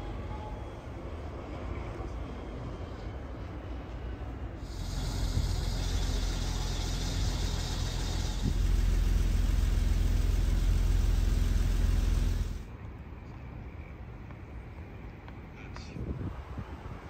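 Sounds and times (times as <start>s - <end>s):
hiss: 4.6s - 12.6s
vehicle engine idling: 4.6s - 12.7s.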